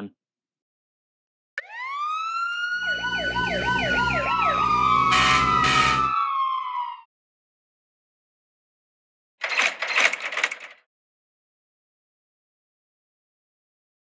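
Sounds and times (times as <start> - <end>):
siren wailing: 1.6 - 7.1.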